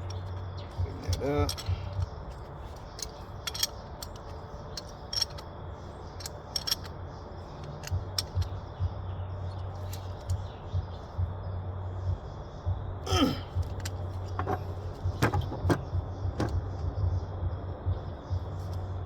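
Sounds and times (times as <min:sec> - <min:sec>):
metal tools clinking: 0:00.0 - 0:05.5, 0:06.1 - 0:08.6, 0:09.5 - 0:10.5, 0:13.5 - 0:16.6
faint low rumble: 0:00.0 - 0:19.0.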